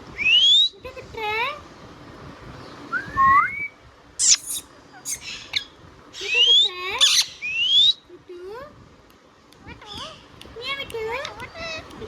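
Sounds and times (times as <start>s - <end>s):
parakeet whistles: 0.2s - 0.8s, 2.9s - 8.0s
parakeet squawks: 4.2s - 8.0s.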